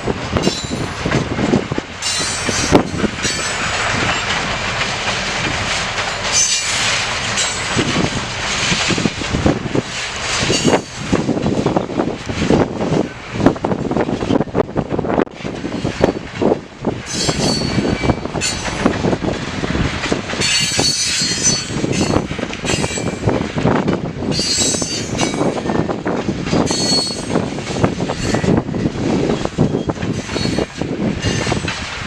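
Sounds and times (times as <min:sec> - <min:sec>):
train wheels clacking over rail joints: 0:00.0 - 0:32.0
high-pitched wheel squeals: 0:26.7 - 0:27.4, 0:29.4 - 0:31.6.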